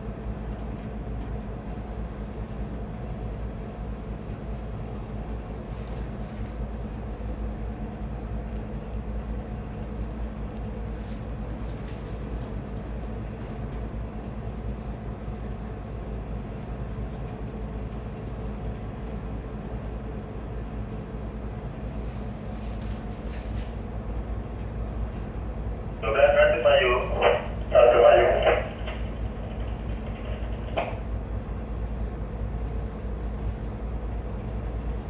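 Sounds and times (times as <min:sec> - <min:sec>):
diesel engine droning: 0:25.2 - 0:32.8.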